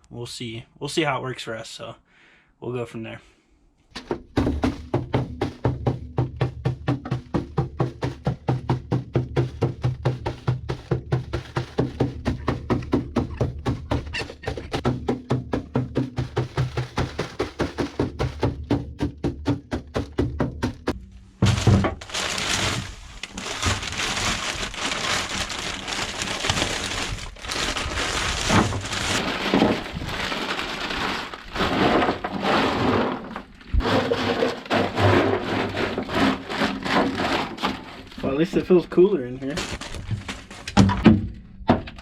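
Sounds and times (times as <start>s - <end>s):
quick rhythmic tapping: 4.2s - 21.0s
dry ice pieces clattering: 28.5s - 38.3s.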